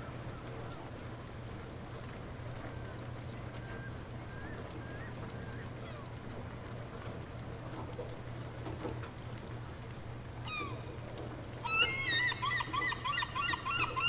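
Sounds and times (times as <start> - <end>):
faint drips: 0.0 - 12.2
light rain falling: 0.0 - 14.0
descending animal call: 11.6 - 14.0.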